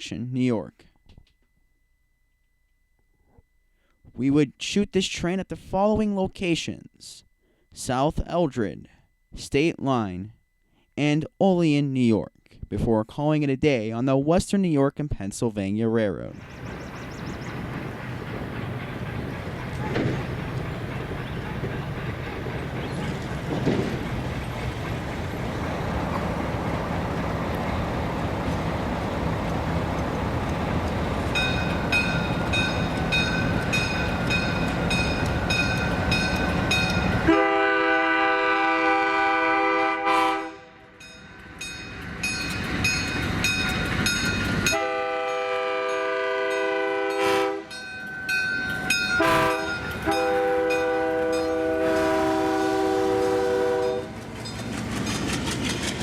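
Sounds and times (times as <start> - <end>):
diesel locomotive rumble: 16.3 - 56.0
bell ringing: 31.4 - 37.2, 47.7 - 51.6
locomotive air horn blasts: 37.2 - 41.0, 44.7 - 47.8, 49.2 - 54.2.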